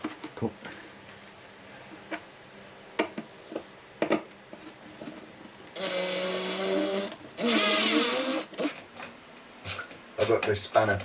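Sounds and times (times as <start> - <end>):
small electric motor whirring: 5.8 - 8.8.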